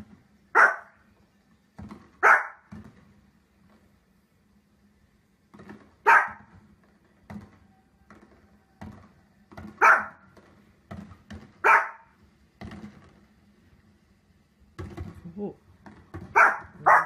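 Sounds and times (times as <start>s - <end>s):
small dog barking: 0.5s - 1.0s, 2.2s - 2.7s, 6.0s - 6.5s, 9.8s - 10.2s, 11.6s - 12.2s, 16.3s - 17.0s.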